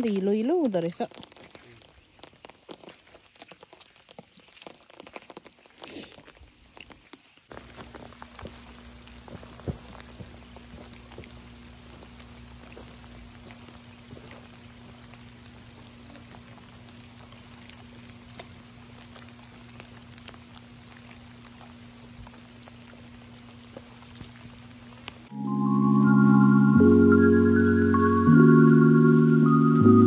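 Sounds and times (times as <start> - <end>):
light rain falling: 0.0 - 30.0
marimba-like music: 25.3 - 30.0.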